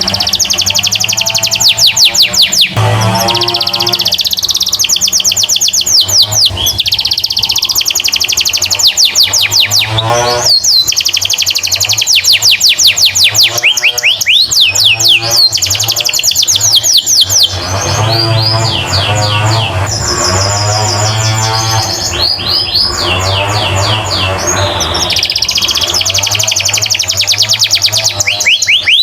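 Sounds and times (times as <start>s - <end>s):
canary singing fast trills: 0.0s - 29.0s.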